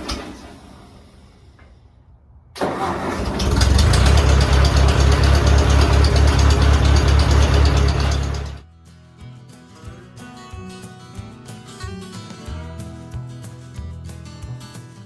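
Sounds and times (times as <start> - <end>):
tractor engine starting and running: 0.0 - 1.8, 2.6 - 8.6.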